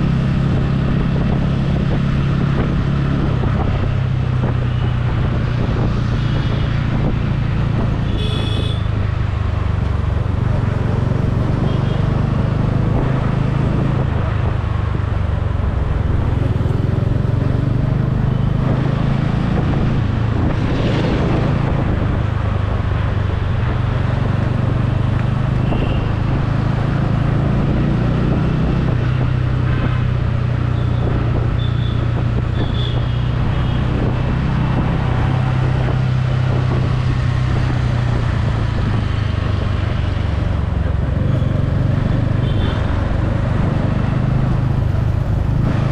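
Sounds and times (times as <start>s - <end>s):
wind and road noise: 0.0s - 45.9s.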